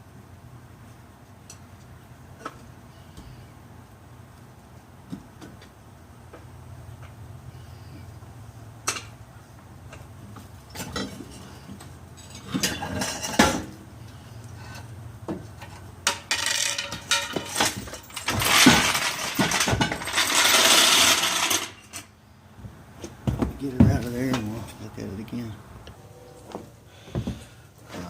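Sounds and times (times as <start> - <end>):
metal tools clinking on steel: 12.2 - 13.6, 15.6 - 22.1.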